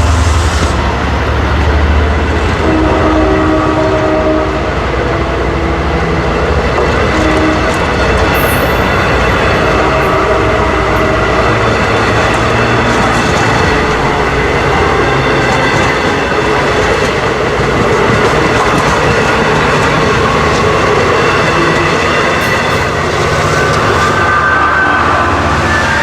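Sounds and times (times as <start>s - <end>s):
passenger train rolling past: 0.0s - 26.0s.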